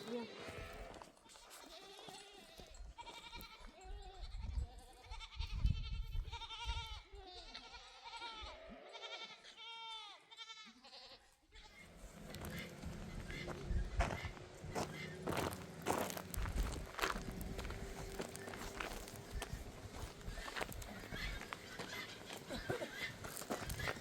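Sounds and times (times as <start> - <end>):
goats bleating: 0.0 - 24.0.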